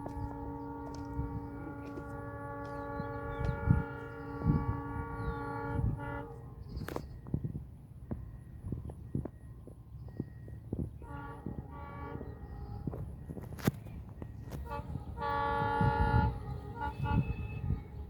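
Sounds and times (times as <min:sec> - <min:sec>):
train horn long blast: 0:00.0 - 0:06.9, 0:11.0 - 0:13.1, 0:14.5 - 0:18.0
train rumbling: 0:00.0 - 0:18.0.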